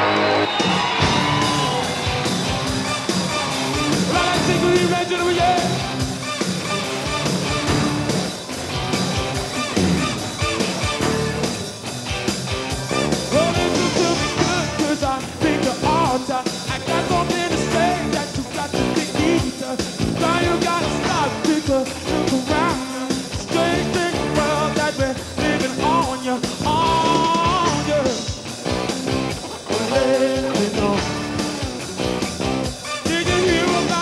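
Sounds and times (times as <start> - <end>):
lead voice singing: 0.0 - 6.3, 12.9 - 29.0, 29.6 - 31.9, 32.8 - 34.0
rock band playing: 0.0 - 34.0.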